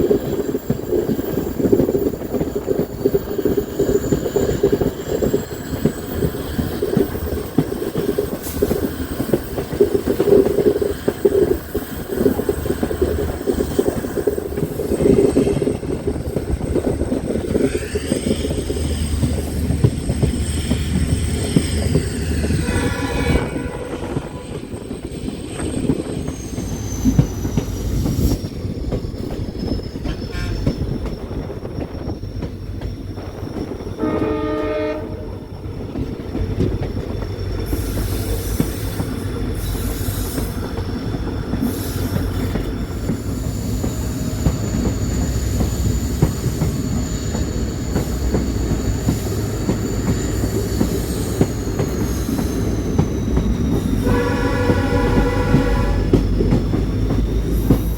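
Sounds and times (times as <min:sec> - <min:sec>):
train rumbling on rails: 0:00.0 - 0:57.9
locomotive horn: 0:22.6 - 0:24.7, 0:34.0 - 0:35.5, 0:54.0 - 0:56.2.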